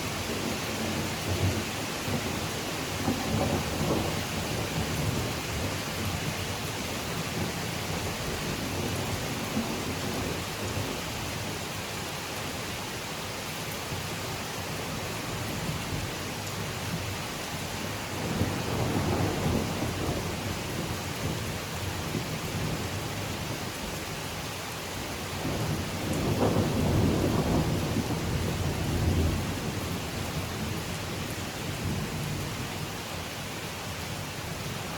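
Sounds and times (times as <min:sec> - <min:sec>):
rain falling on foliage: 0:00.0 - 0:34.9
low rolls of thunder: 0:00.3 - 0:06.4, 0:18.2 - 0:23.1, 0:25.4 - 0:32.7.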